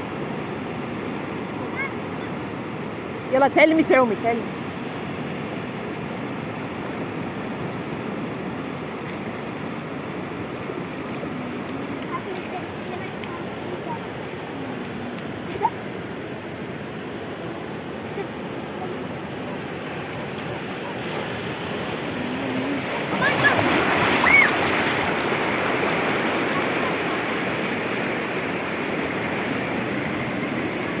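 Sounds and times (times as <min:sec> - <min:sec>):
sea surf washing on shore: 0:00.0 - 0:31.0.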